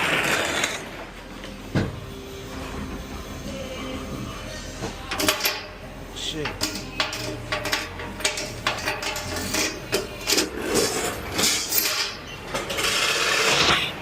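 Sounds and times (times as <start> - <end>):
metal rattling and clanking: 5.1 - 14.0.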